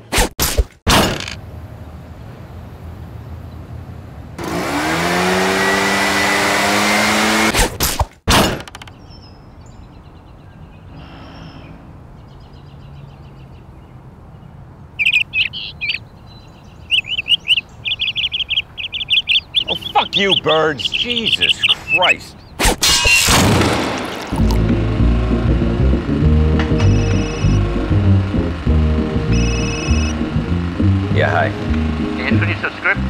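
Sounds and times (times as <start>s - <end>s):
roaring machine-like noise: 4.4s - 7.6s, 23.6s - 33.0s
sharp knocks: 7.7s - 9.0s
birds chirping rapidly: 8.8s - 23.3s, 25.6s - 33.0s.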